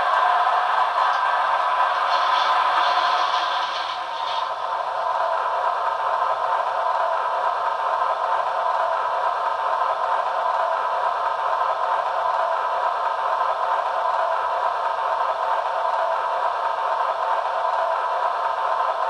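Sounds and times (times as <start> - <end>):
model locomotive hiss from speaker: 0.0 - 5.3.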